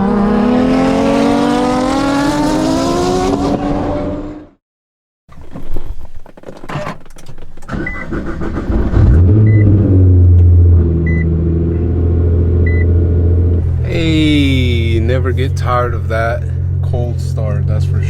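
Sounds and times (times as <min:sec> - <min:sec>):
car engine cranking: 0:05.3 - 0:11.2
car engine idling: 0:09.7 - 0:18.0.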